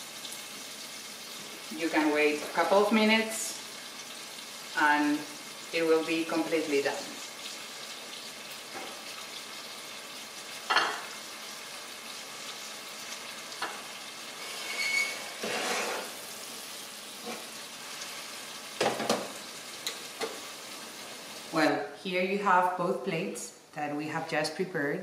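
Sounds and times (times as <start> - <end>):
shrimp sizzling in frying pan: 0.0 - 21.7
spoon knocking and scraping pan: 10.6 - 11.2, 13.6 - 13.9, 18.8 - 20.4.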